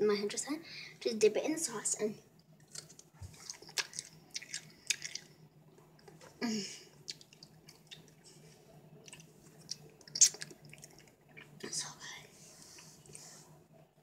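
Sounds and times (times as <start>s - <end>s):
person chewing: 2.6s - 5.4s, 7.0s - 8.2s, 9.0s - 11.6s
wet mouth smacks: 9.1s - 11.0s.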